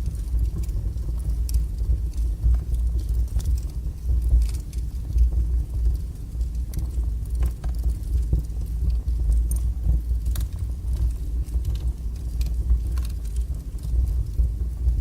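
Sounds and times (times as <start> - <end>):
fire crackling and popping: 0.0 - 15.0
fire roaring: 0.0 - 15.0.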